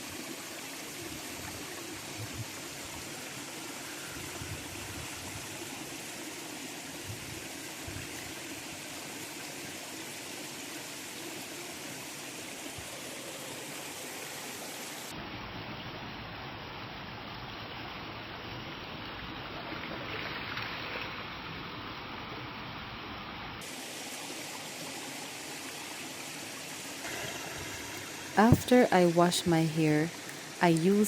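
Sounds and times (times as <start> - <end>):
river water flowing: 0.0 - 15.2, 23.6 - 31.0.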